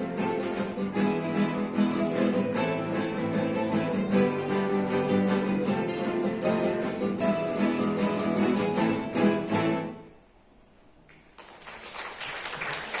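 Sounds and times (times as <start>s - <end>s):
acoustic guitars strumming: 0.0s - 10.2s
applause: 11.1s - 13.0s.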